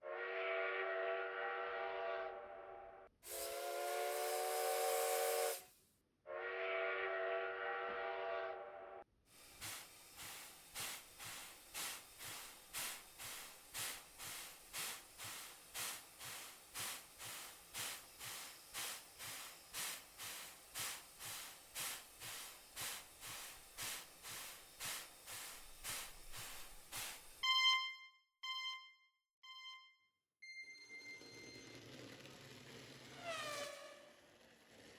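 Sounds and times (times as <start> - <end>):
steam whistle blowing: 0.0 - 2.4, 3.2 - 5.7, 6.3 - 8.8, 33.2 - 34.2
steam locomotive chuffing: 3.2 - 5.7, 9.4 - 27.4, 31.1 - 34.9
steam hissing: 3.3 - 5.7, 9.4 - 27.4.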